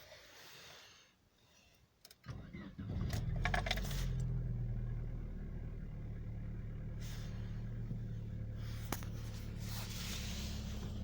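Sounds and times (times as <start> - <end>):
car engine idling: 2.7 - 11.0.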